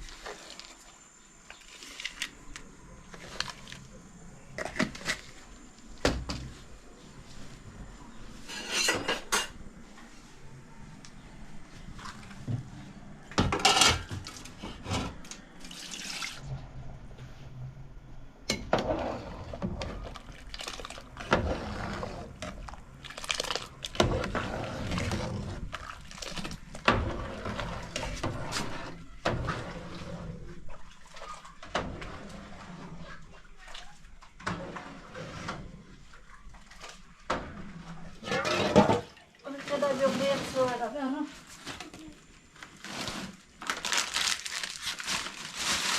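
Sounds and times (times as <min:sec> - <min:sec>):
water pouring and splashing: 0:15.6 - 0:16.5, 0:19.4 - 0:41.2, 0:42.8 - 0:45.9.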